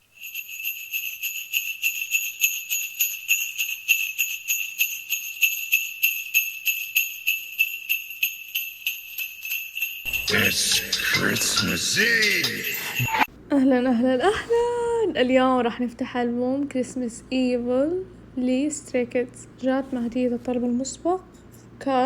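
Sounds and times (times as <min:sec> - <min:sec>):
jingle bells shaken: 0:00.0 - 0:13.3.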